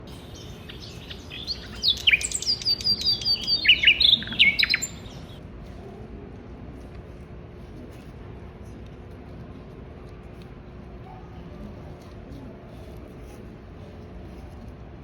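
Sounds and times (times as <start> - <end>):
songbird singing: 0.0 - 5.4.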